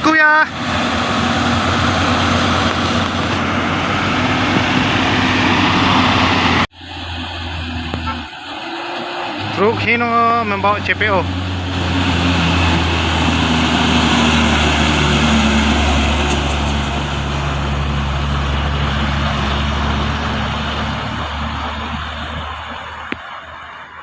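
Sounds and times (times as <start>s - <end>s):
road noise: 0.0s - 24.0s
truck diesel engine pulling: 0.0s - 24.0s.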